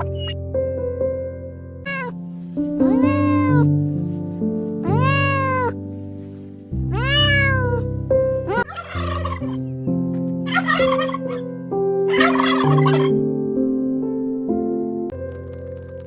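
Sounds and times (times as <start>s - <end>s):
background music: 0.0s - 16.0s
cat meowing: 1.9s - 2.2s, 2.8s - 3.8s, 4.8s - 5.8s, 6.9s - 7.9s, 8.5s - 8.7s.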